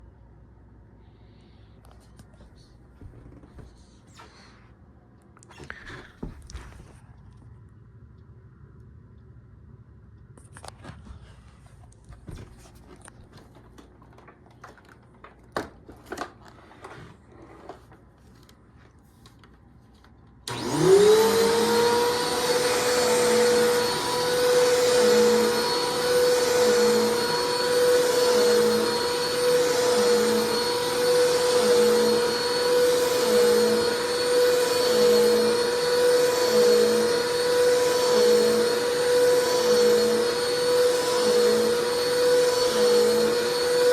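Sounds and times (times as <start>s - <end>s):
vacuum cleaner motor whine: 20.4s - 43.9s.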